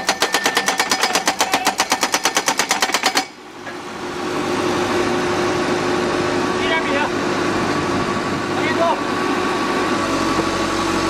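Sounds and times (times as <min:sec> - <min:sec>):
pile driver hammering: 0:00.0 - 0:03.4
engine running: 0:03.5 - 0:11.0.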